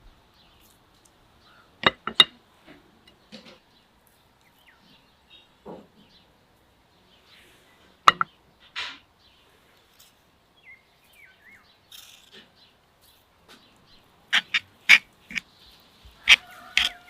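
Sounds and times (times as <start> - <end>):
faint bird chirp: 1.4 - 1.8, 3.1 - 17.0
sharp knocks or clicks: 8.1 - 8.3.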